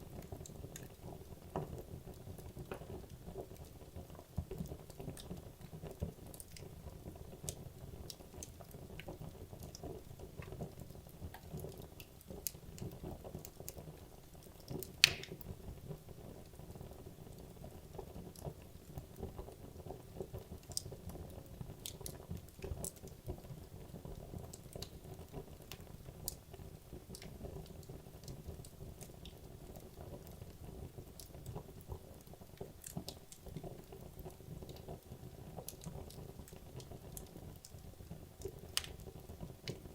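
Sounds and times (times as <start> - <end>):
fire crackles: 0.0 - 39.9
wood logs burning in fireplace: 0.0 - 39.9
loud pop of burning wood: 15.0 - 15.4.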